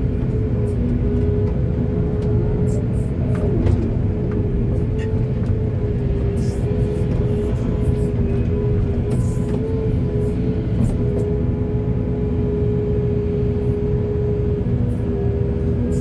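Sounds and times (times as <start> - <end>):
excavator diesel engine rumbling: 0.0 - 12.6.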